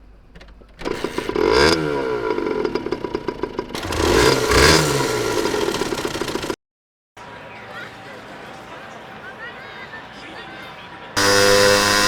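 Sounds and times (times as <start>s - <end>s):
two-stroke engine revving and idling: 0.1s - 6.6s, 11.2s - 12.0s.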